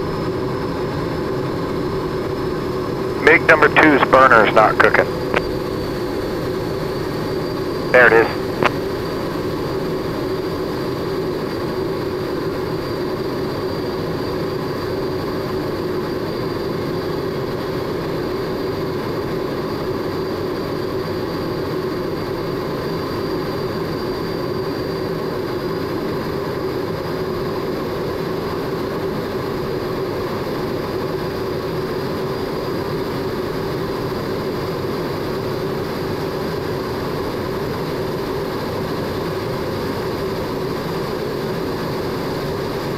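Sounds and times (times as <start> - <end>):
jet engine running: 0.0 - 42.9
faint high whine: 2.2 - 10.5.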